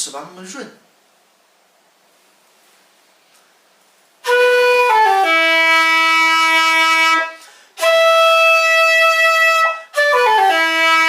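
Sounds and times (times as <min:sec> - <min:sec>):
end-blown flute playing: 0:04.2 - 0:11.0
breath: 0:07.4 - 0:07.8.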